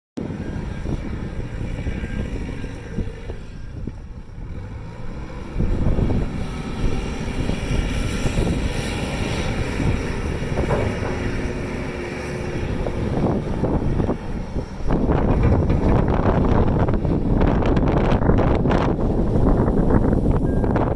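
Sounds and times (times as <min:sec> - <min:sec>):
wind buffeting microphone: 0:00.2 - 0:20.9
telehandler engine running: 0:00.3 - 0:20.9.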